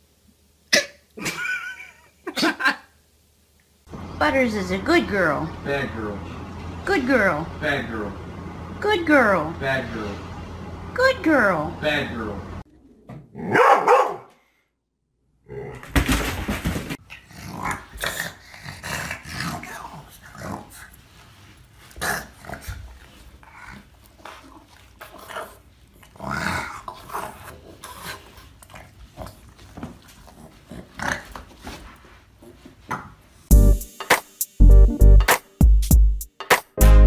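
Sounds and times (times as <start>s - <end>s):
dog growling: 17.1s - 20.9s, 21.9s - 31.4s.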